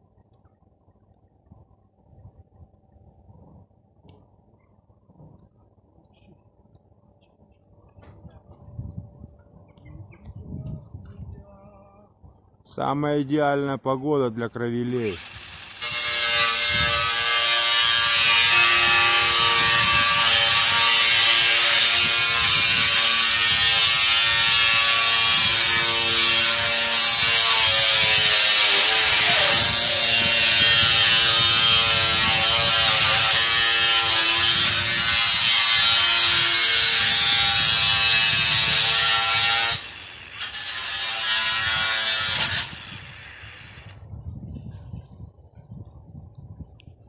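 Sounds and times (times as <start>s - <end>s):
electric power tool running: 15.2s - 16.2s.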